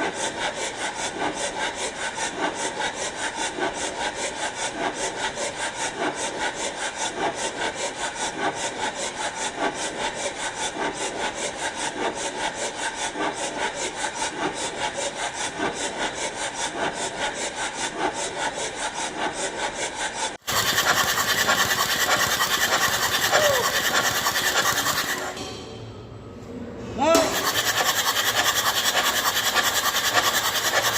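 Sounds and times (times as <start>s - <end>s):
hand rubbing back and forth: 0.5s - 25.4s, 27.3s - 30.9s
hissy rasping: 20.4s - 25.4s, 27.2s - 30.9s.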